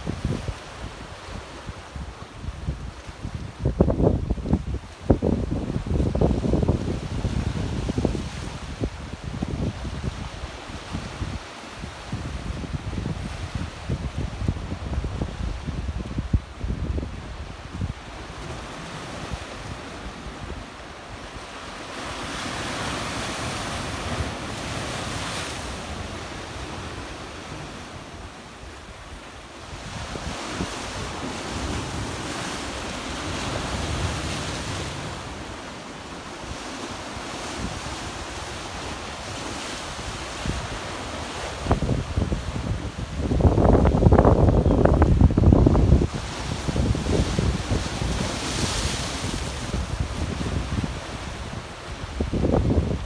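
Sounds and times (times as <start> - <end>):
wind rumbling on microphone: 0.0 - 20.6, 37.4 - 53.0
waves washing onto rocks: 17.6 - 53.0.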